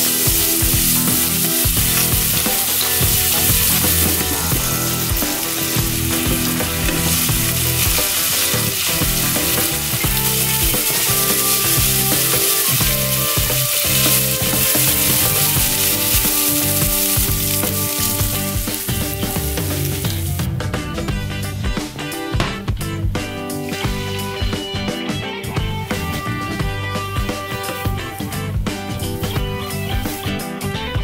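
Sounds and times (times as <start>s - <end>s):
wooden spatula stirring: 0.0s - 20.4s
food sizzling in hot oil: 0.0s - 20.5s.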